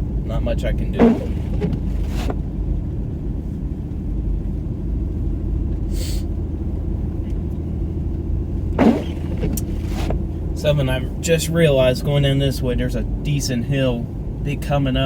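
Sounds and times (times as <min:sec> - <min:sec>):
car driving on snowy road: 0:00.0 - 0:15.0.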